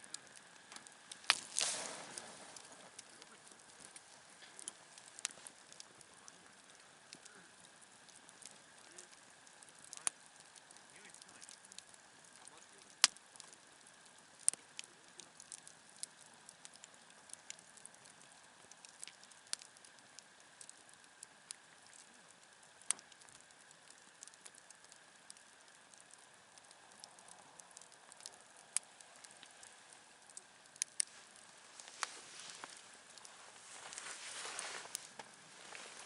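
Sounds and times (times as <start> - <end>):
campfire crackling and popping: 0.0 - 36.0.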